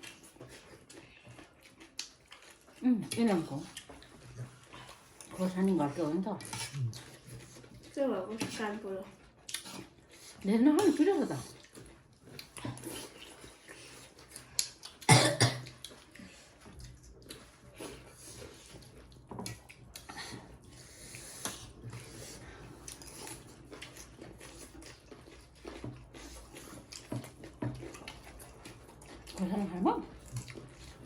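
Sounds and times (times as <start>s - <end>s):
loud cough: 15.1s - 15.7s.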